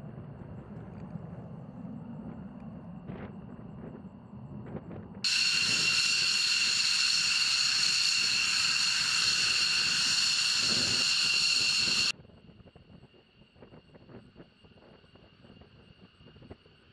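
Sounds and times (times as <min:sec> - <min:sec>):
jet engines whining: 0:05.3 - 0:12.1.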